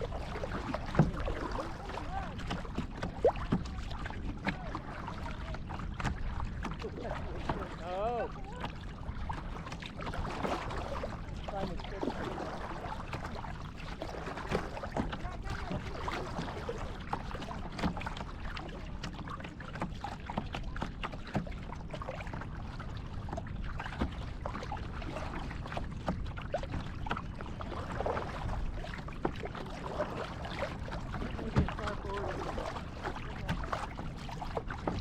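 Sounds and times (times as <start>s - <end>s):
paddle splashes and drips: 0.0s - 35.0s.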